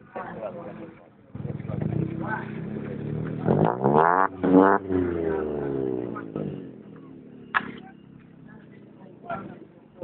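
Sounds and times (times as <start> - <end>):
engine revving: 1.4 - 8.2.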